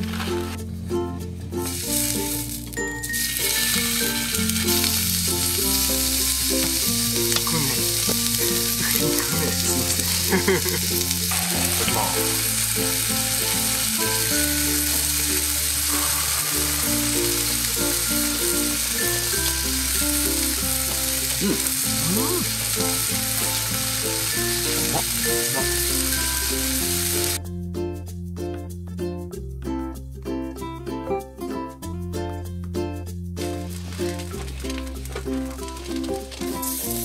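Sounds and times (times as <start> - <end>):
meat sizzling in frying pan: 1.7 - 27.4, 33.5 - 37.0.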